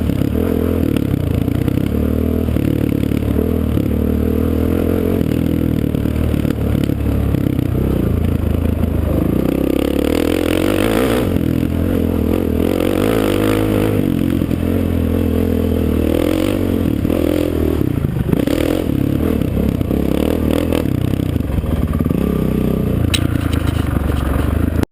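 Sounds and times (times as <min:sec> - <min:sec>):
off-road vehicle engine revving: 0:00.0 - 0:24.8
sharp click: 0:23.1 - 0:24.3.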